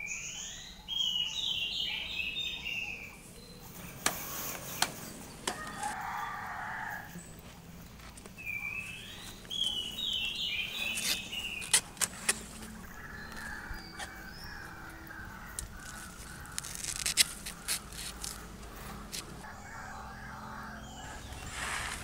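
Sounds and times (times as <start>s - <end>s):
bird calling: 8.4s - 22.0s.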